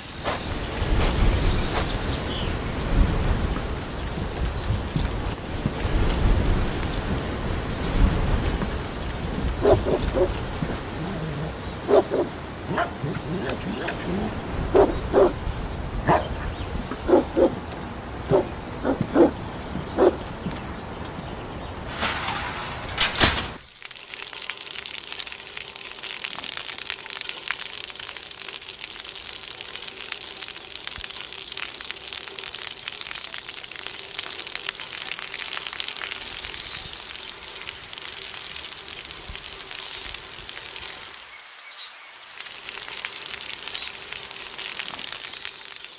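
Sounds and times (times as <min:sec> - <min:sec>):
steady rain falling: 0:00.0 - 0:45.9
loud crack: 0:21.9 - 0:23.7.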